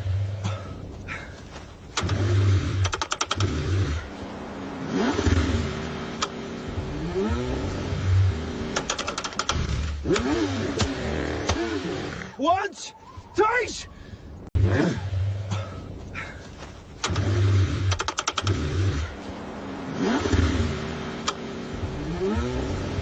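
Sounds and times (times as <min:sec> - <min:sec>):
car engine cranking: 0:01.8 - 0:12.4, 0:16.5 - 0:23.0.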